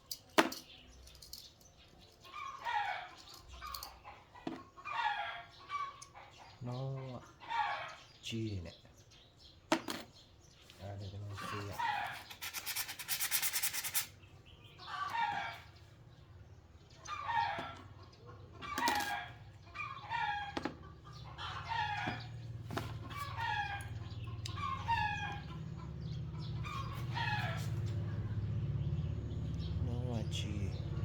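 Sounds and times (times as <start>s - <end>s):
rasping scraping noise: 11.4s - 14.2s
chicken calling: 17.0s - 28.0s.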